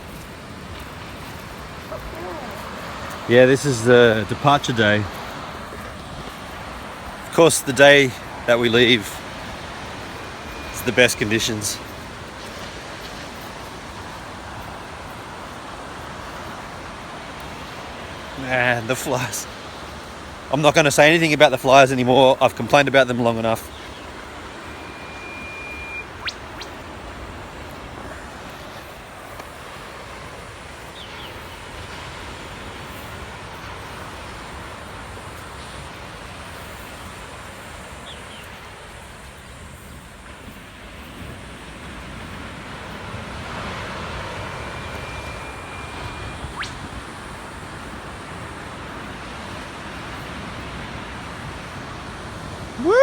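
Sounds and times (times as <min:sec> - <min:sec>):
surf and wind: 0:00.0 - 0:53.0
whipbird whip-crack calls: 0:01.8 - 0:03.3, 0:23.7 - 0:27.3, 0:44.4 - 0:47.3.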